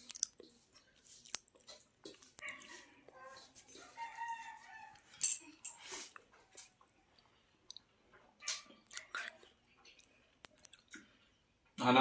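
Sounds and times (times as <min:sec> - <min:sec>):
person chewing and biting: 0:00.0 - 0:02.8, 0:08.5 - 0:11.1.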